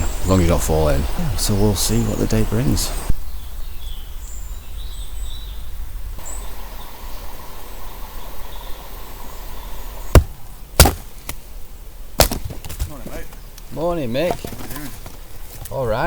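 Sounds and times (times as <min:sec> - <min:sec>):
outdoor background noise: 0:00.0 - 0:16.0
axe splitting firewood: 0:10.1 - 0:11.4, 0:12.2 - 0:13.4, 0:14.2 - 0:15.7.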